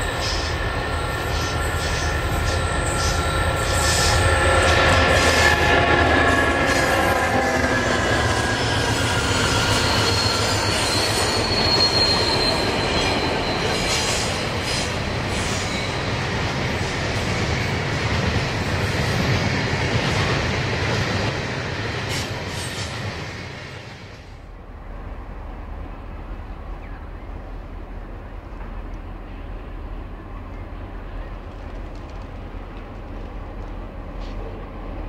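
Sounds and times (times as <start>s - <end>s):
high wheel squeal: 0.0s - 16.1s
diesel locomotive engines: 0.0s - 35.0s
train horn: 1.3s - 12.6s.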